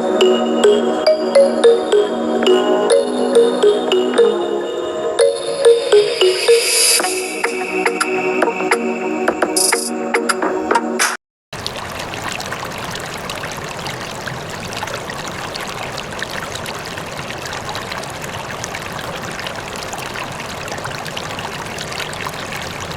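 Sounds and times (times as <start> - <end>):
water pouring and trickling: 11.6 - 22.9.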